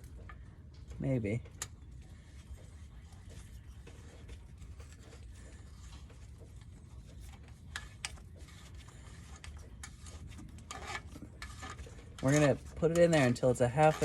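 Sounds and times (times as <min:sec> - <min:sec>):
steady low hum: 0:00.0 - 0:14.0
metal tool clicks and scraping: 0:07.5 - 0:14.0.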